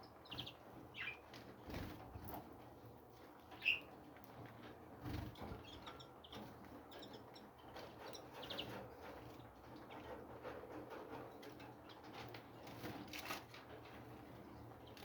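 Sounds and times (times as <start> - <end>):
small birds chirping: 0.0 - 2.4, 3.4 - 4.0, 5.0 - 10.2, 14.2 - 15.0.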